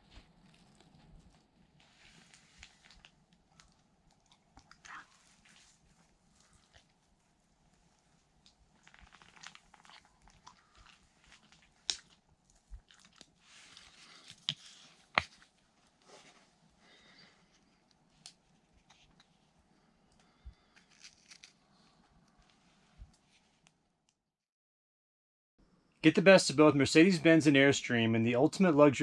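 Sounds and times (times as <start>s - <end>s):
quiet rustling and crunching: 0.0s - 16.7s, 17.4s - 23.7s.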